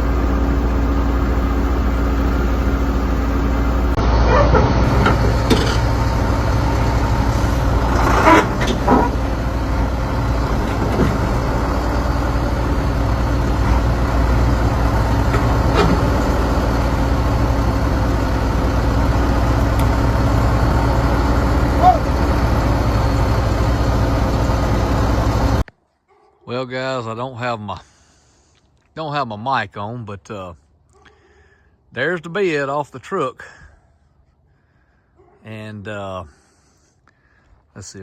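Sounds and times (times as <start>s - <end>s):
heavy engine idling: 0.0s - 25.6s
metal knocks and clanks: 4.3s - 6.0s.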